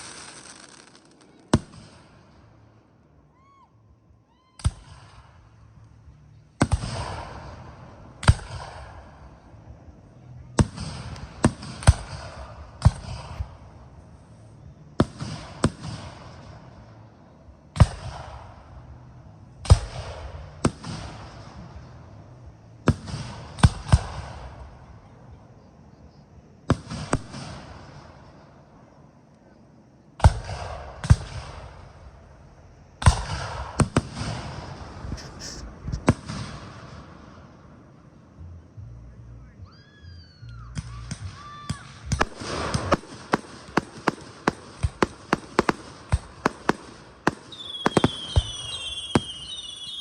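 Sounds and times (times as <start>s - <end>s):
fireworks shells booming: 0.0s - 2.6s, 6.6s - 9.7s, 33.0s - 37.7s, 40.7s - 50.0s.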